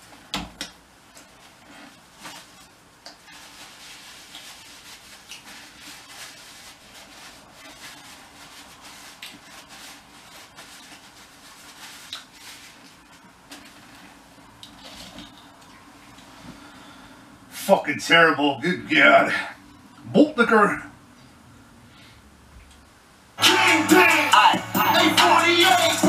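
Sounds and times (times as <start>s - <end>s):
man chewing food: 9.0s - 9.7s, 10.7s - 16.5s.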